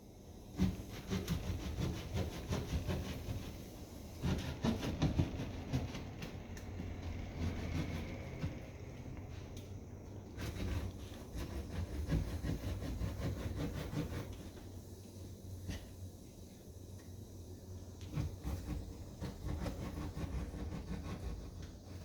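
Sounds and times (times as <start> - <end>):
drywall rasping and knocking: 0.5 - 8.8, 10.3 - 14.8, 18.0 - 22.0.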